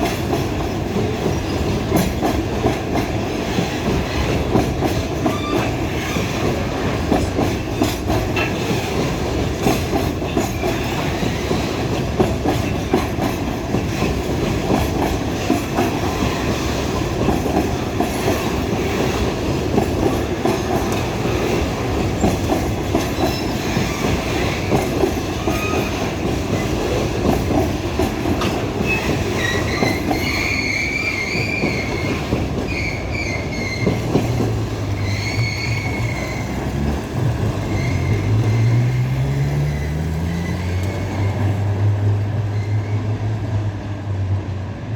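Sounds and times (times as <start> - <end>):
train wheels clacking over rails: 0.0 - 43.2
high-pitched wheel squeal: 28.8 - 34.1, 34.9 - 36.7, 37.6 - 41.5.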